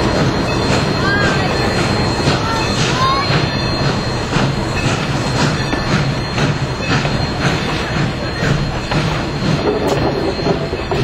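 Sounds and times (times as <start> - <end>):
train car rumbling: 0.0 - 11.0
wheels clacking over rail joints: 0.0 - 11.0
wheel squeal: 0.4 - 11.0.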